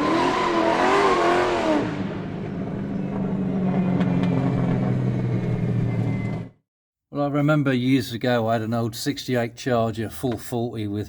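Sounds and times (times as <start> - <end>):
car engine revving and idling: 0.0 - 6.1.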